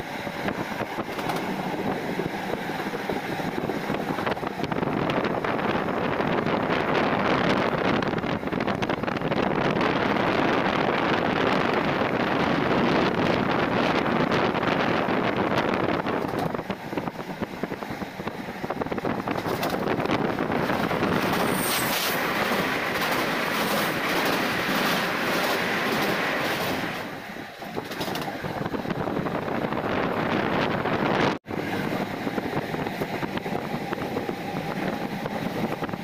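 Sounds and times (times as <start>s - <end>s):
train rumbling and rattling: 0.0s - 36.0s
high squeal: 21.2s - 22.4s.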